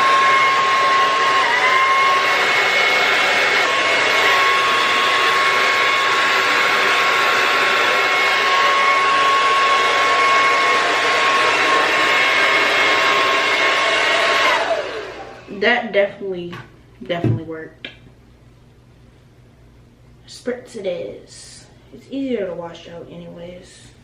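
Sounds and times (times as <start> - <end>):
blow dryer running: 0.0 - 16.3.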